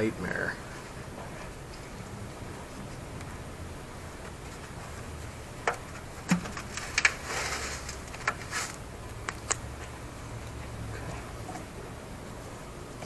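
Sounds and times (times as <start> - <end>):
short rustle or scrape: 6.8 - 8.8.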